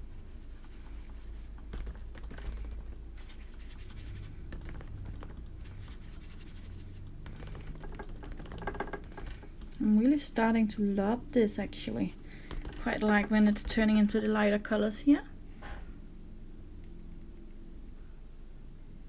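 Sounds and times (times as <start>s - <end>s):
brush scratching on paper: 0.0s - 9.4s
low room hum: 0.0s - 19.0s.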